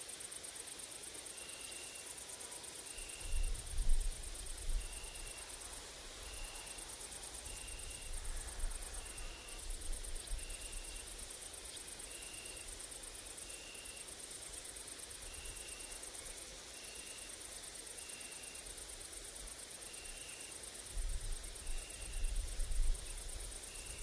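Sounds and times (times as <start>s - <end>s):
insects buzzing: 0.0s - 24.0s
wind rumble on microphone: 3.3s - 5.2s, 20.9s - 24.0s.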